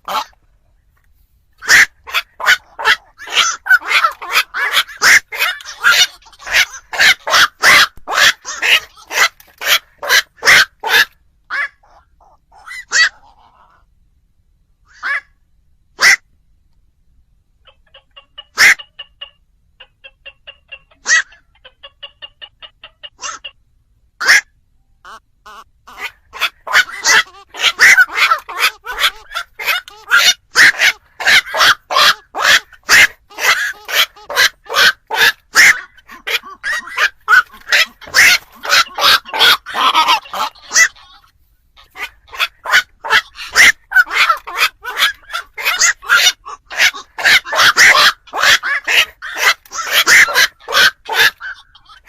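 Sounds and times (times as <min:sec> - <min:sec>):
herons calling with harsh croaks: 0:00.0 - 0:00.5, 0:01.6 - 0:13.9, 0:24.2 - 0:52.0.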